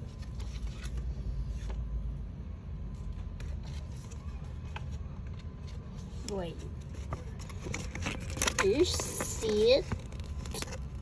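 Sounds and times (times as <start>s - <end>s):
clicks and rustles of packaging: 3.2s - 11.0s.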